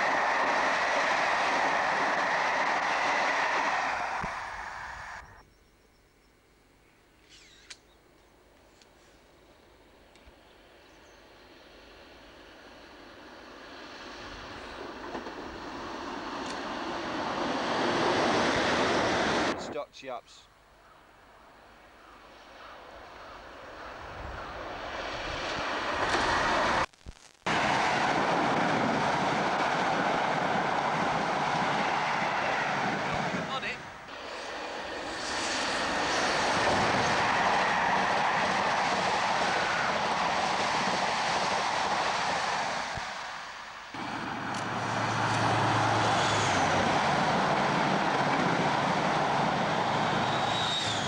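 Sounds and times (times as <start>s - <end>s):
train passing at speed: 0.0s - 5.4s, 10.2s - 19.8s, 21.1s - 26.9s, 27.5s - 51.0s
wheels rushing on rails: 0.0s - 5.4s, 10.1s - 19.7s, 22.2s - 26.9s, 27.5s - 51.0s
diesel engine drone: 43.9s - 51.0s.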